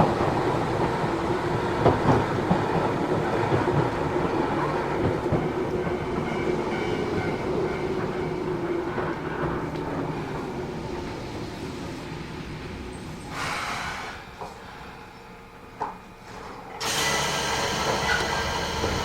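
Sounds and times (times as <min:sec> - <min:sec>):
clickety-clack over rail joints: 0:00.0 - 0:11.2, 0:15.7 - 0:17.2
train wheels rumbling on rails: 0:00.0 - 0:19.0.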